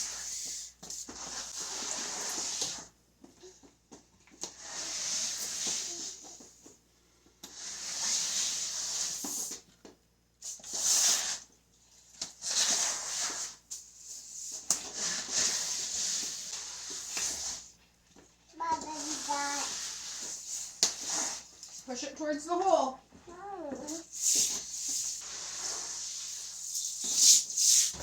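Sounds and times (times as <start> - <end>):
broom swishing on wet floor: 0.0 - 3.0, 4.4 - 6.4, 7.5 - 9.6, 10.4 - 11.5, 12.2 - 17.8, 18.6 - 22.0, 23.8 - 28.0.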